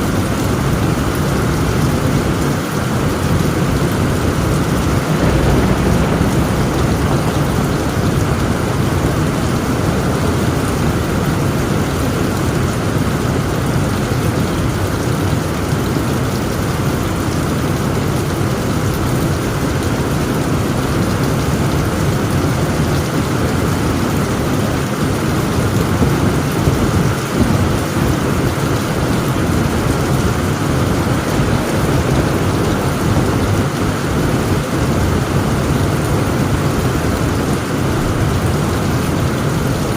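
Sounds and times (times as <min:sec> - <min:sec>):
low thunder rumble: 0:00.0 - 0:24.9, 0:25.6 - 0:39.9
heavy rain on a tent roof: 0:00.0 - 0:39.9.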